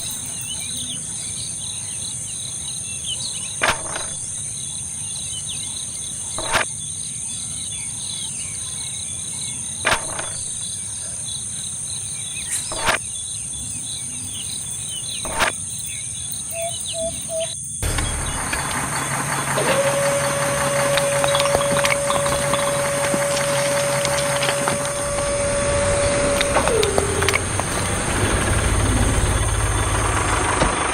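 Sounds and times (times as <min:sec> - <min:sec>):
bird chirps: 0:00.0 - 0:30.3
high insect drone: 0:00.0 - 0:30.9
steady whine: 0:16.8 - 0:30.9
loud rushing noise: 0:17.8 - 0:30.9.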